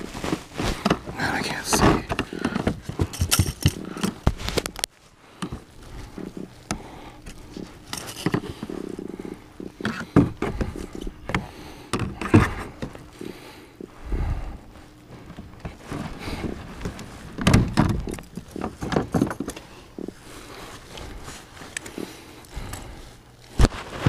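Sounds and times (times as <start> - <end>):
knocks clatter and scrapes: 0.0 - 4.9, 7.5 - 11.4, 15.2 - 20.2.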